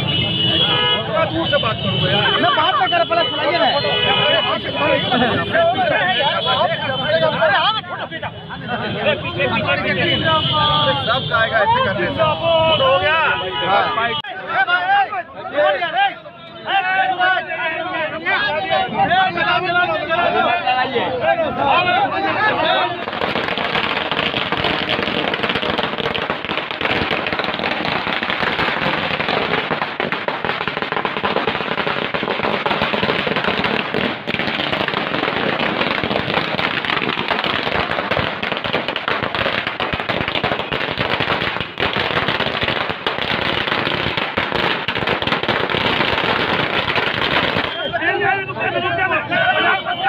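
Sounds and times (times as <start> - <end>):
firecrackers cracking: 22.7 - 48.0.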